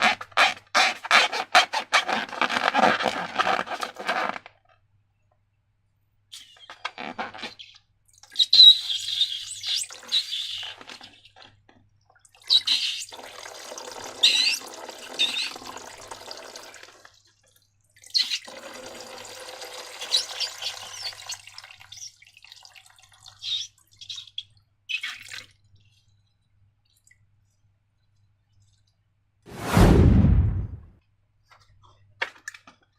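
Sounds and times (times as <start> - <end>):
wet slime squeezed and poured: 19.8 - 26.2.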